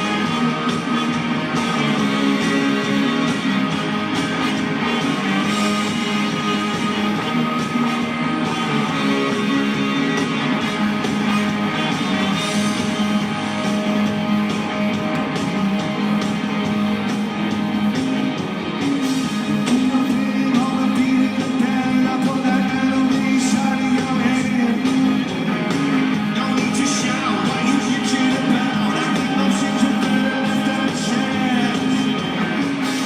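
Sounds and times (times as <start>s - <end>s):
guitars: 0.0s - 33.0s
live rock band: 0.0s - 33.0s
person singing: 19.4s - 33.0s.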